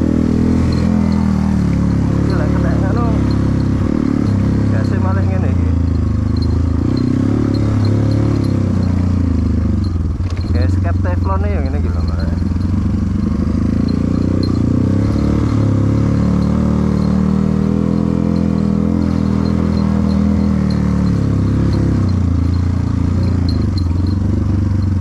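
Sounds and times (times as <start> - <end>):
motorcycle engine under load: 0.0 - 25.0.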